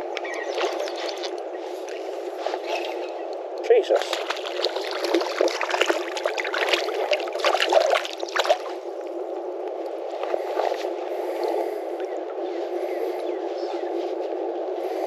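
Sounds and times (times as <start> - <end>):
creek water running: 0.0 - 9.4
sharp splashes and clicks: 2.7 - 8.8.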